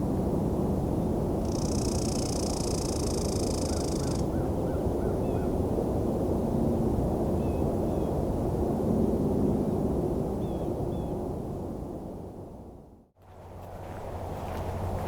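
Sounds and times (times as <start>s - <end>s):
thin slurred bird calls: 1.4s - 5.6s
buzzy high bird call: 1.5s - 4.2s
steady low rumble: 11.4s - 15.0s.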